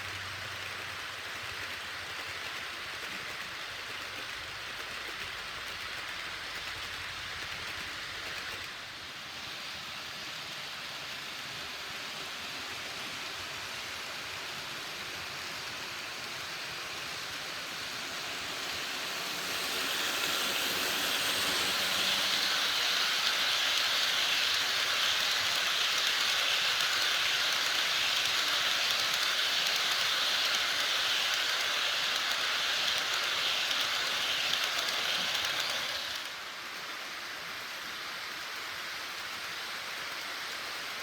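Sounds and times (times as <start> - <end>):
model train running on track: 0.0 - 41.0.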